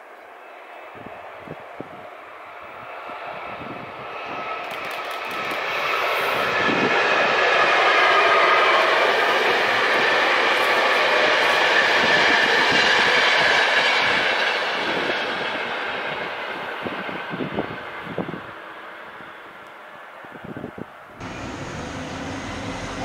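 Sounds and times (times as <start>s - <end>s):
train wheels on rail: 4.1s - 18.4s, 21.2s - 23.0s.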